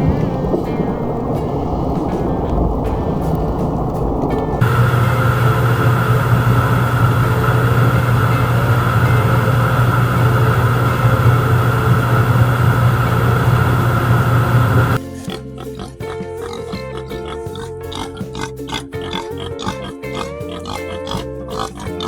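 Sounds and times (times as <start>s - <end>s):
motor humming: 0.0s - 15.0s.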